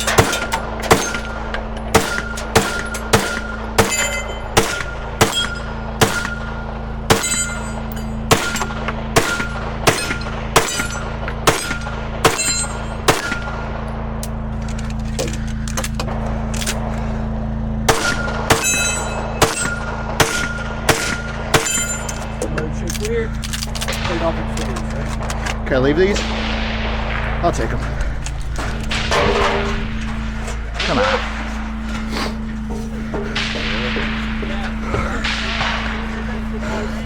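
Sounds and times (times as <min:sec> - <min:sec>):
gunshots: 0:00.0 - 0:13.8, 0:17.8 - 0:22.1, 0:23.8 - 0:31.9, 0:33.3 - 0:36.8
short ringing after shots: 0:00.0 - 0:14.5, 0:17.8 - 0:22.4
steady low hum: 0:00.0 - 0:37.0.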